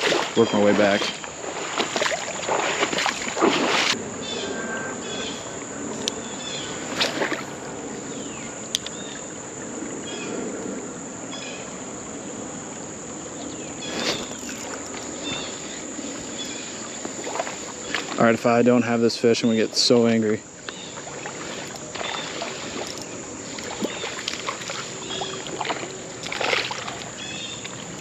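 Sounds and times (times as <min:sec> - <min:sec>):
footsteps splashing through water: 0:00.0 - 0:04.0, 0:06.8 - 0:07.6, 0:16.4 - 0:18.3, 0:20.6 - 0:28.0.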